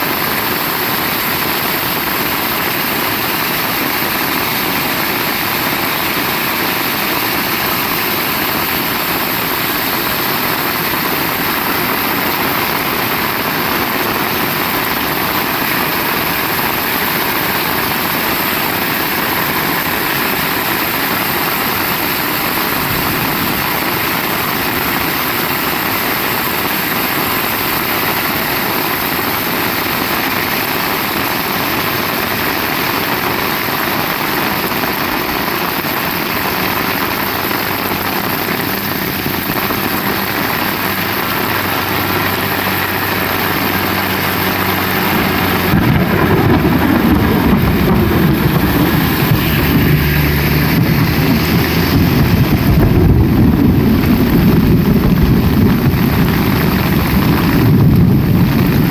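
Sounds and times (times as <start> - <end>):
heavy rain falling: 0.0 - 58.9
loud low rumble: 38.8 - 58.9.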